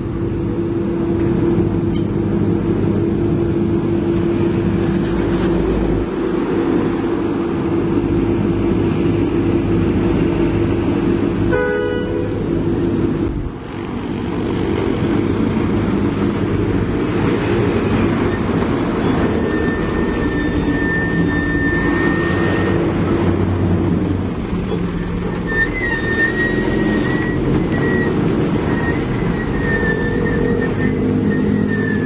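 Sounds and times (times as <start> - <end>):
heavy diesel engine running: 0.0 - 32.0
short horn toot: 11.5 - 12.4.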